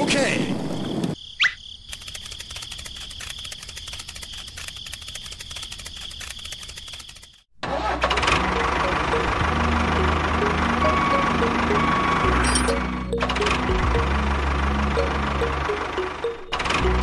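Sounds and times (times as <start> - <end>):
small motor clicking and whining: 1.9 - 7.5.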